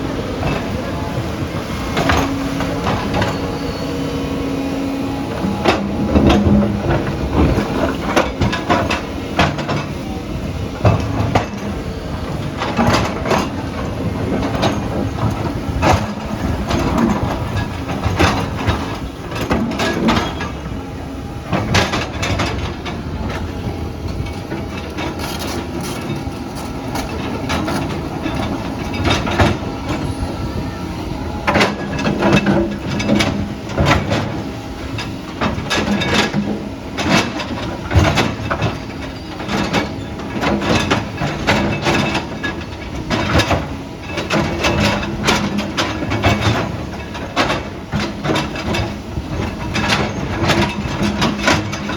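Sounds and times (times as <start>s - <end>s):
diesel engine running: 0.0s - 38.1s
metal tracks clanking: 0.0s - 51.9s.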